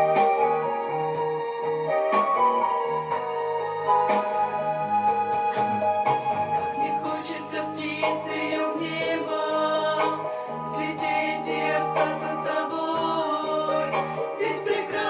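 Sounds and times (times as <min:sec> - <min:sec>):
keyboard accompaniment: 0:00.0 - 0:15.0
women singing in harmony: 0:06.6 - 0:15.0.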